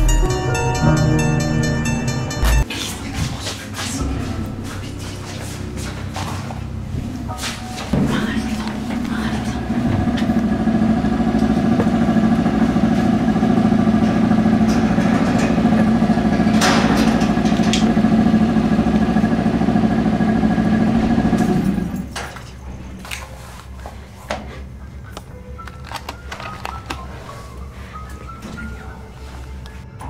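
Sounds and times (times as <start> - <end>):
vehicle engine idling: 8.7 - 22.1.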